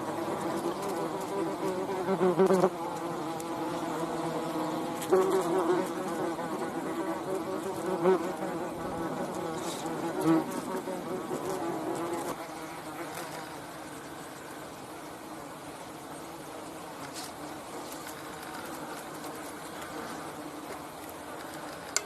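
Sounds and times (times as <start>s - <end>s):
flying insect buzzing: 0.0s - 14.7s.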